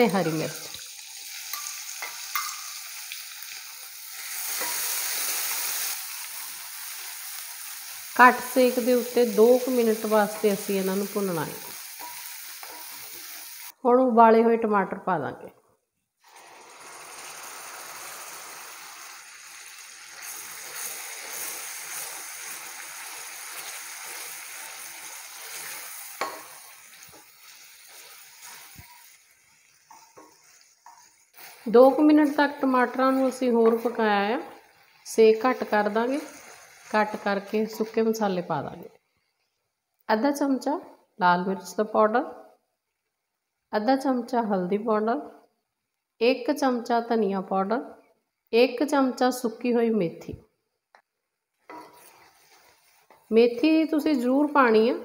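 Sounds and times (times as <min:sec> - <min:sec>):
paste sizzling in hot ghee: 0:00.0 - 0:13.8, 0:16.2 - 0:38.6, 0:51.5 - 0:55.0.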